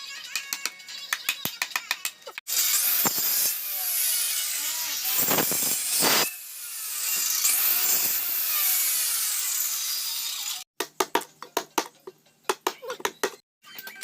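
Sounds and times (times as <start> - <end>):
power tool cutting wood: 2.5 - 10.7.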